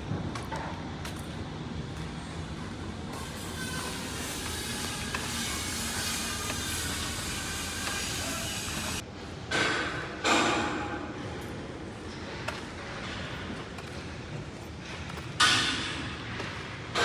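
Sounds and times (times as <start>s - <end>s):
loud steady hiss: 3.1s - 9.0s.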